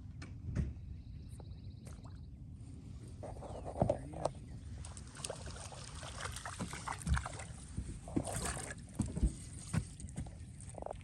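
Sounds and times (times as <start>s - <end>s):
water splashing and trickling: 4.2s - 11.0s.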